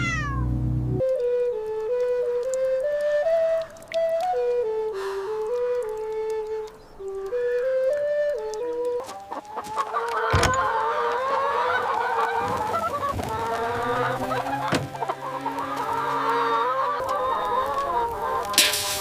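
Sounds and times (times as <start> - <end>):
chickens clucking: 8.9 - 19.0.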